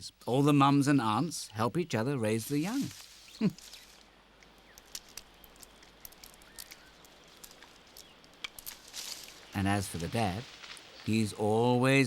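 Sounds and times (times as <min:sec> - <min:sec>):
light crackles and rustles: 0:02.4 - 0:11.5.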